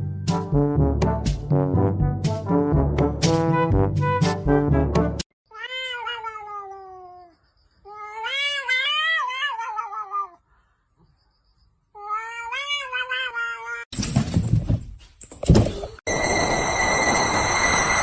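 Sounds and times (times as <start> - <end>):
brass music: 0.0 - 5.2
cat meowing: 5.5 - 7.3, 7.9 - 10.4, 12.0 - 13.9.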